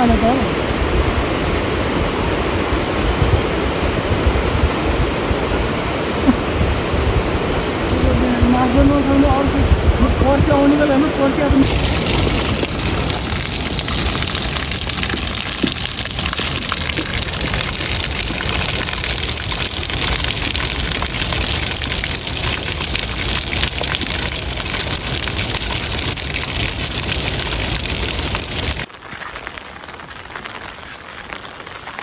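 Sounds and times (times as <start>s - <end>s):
steady rain falling: 11.6s - 32.0s.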